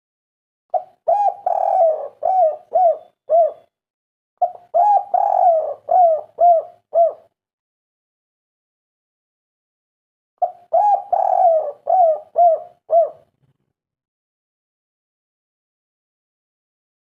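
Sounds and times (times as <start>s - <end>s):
dove cooing: 0.7s - 3.7s, 4.4s - 7.3s, 10.4s - 13.4s.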